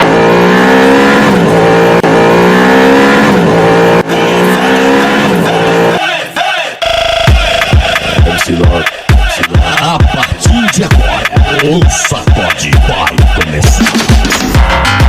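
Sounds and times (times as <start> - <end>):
sports car engine revving: 0.0 - 6.0.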